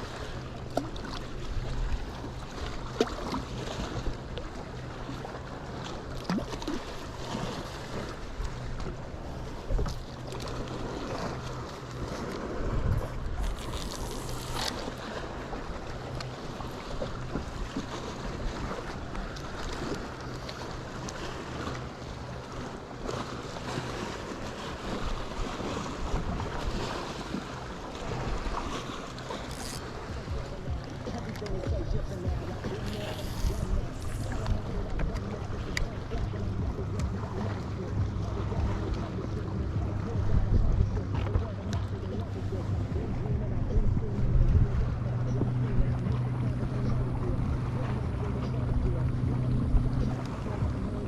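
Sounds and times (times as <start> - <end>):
wind buffeting microphone: 0.0 - 21.5, 23.6 - 51.0
boat motor humming: 0.0 - 51.0
water noise: 0.0 - 51.0
low thumps: 29.8 - 35.2.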